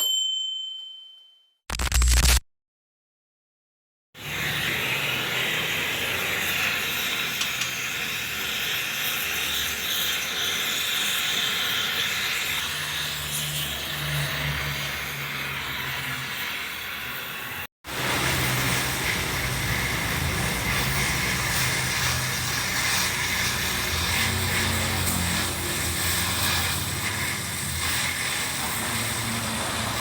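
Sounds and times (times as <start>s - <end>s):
arc welding sizzling hiss: 4.2s - 14.0s, 14.8s - 30.0s.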